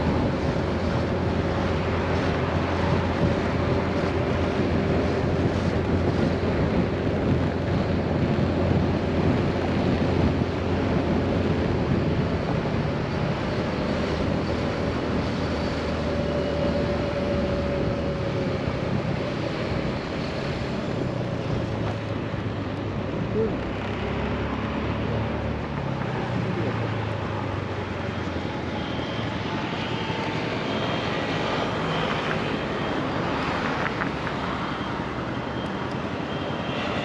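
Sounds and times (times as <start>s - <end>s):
wind buffeting microphone: 0.0s - 24.1s
road noise: 0.0s - 37.0s.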